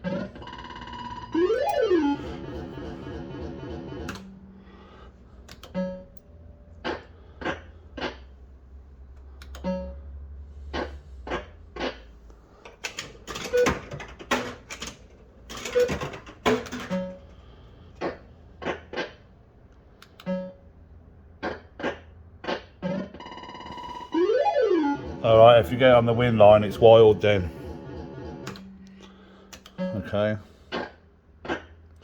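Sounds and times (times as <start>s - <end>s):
fruit machine clicks and clunks: 12.7s - 17.4s
low hum: 23.7s - 30.7s.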